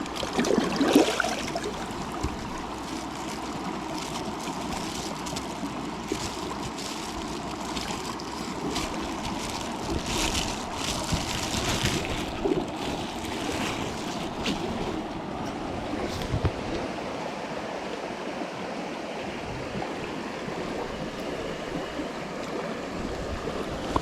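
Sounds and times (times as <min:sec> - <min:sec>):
stream water flowing: 0:00.0 - 0:24.0.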